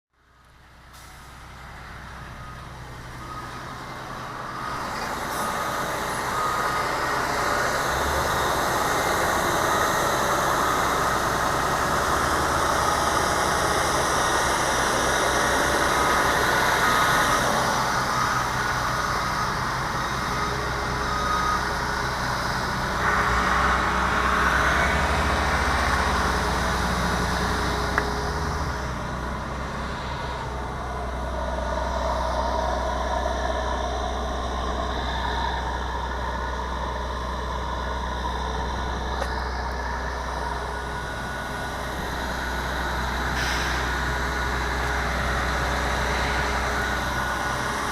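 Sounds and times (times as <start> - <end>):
bus diesel engine droning: 0.1 - 47.9.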